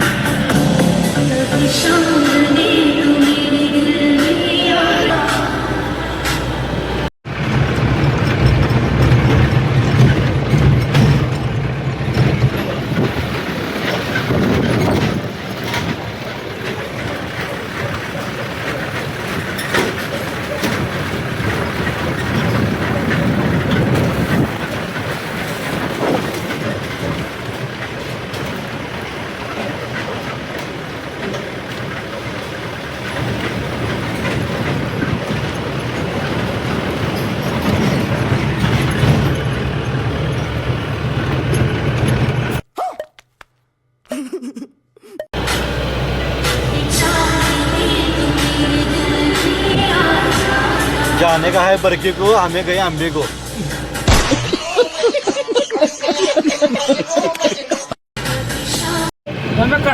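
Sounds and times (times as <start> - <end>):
vehicle road noise: 0.0 - 42.6, 45.3 - 54.5, 58.2 - 59.9
continuous rattle: 6.2 - 42.6, 45.4 - 54.1.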